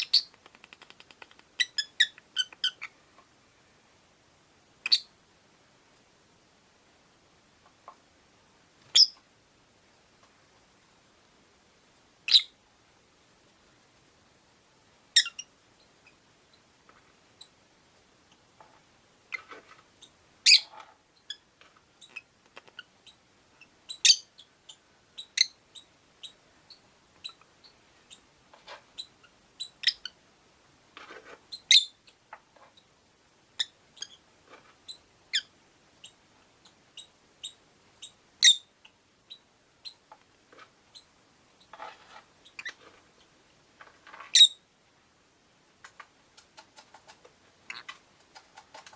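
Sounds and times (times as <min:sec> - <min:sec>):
lovebirds chirping: 0:00.0 - 0:03.0, 0:04.8 - 0:05.2, 0:08.8 - 0:09.2, 0:12.2 - 0:12.6, 0:15.1 - 0:16.6, 0:19.3 - 0:28.3, 0:28.9 - 0:30.2, 0:31.5 - 0:32.9, 0:33.6 - 0:34.2, 0:34.8 - 0:40.1, 0:42.4 - 0:42.8, 0:44.3 - 0:44.6, 0:47.6 - 0:48.0.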